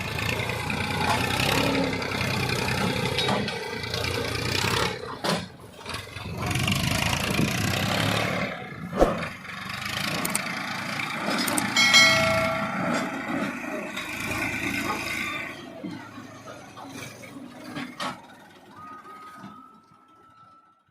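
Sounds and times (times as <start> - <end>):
diesel tractor engine running: 0.0 - 20.8
bell-like ringing tone: 11.8 - 13.3.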